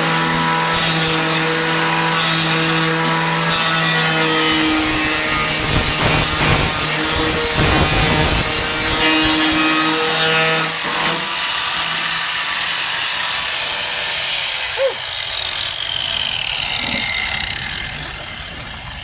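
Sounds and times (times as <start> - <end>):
angle grinder grinding metal: 0.0 - 19.0
grinder spinning down: 4.2 - 19.0.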